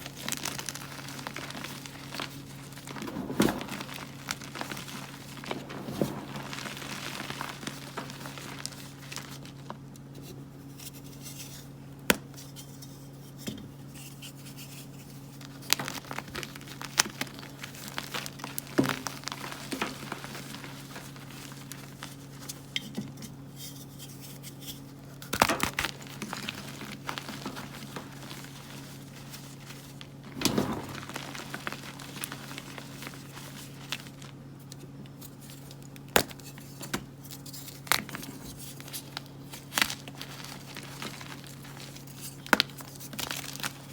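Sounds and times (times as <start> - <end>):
chalk blocks crunching by hand: 0.0 - 9.8, 24.0 - 43.9.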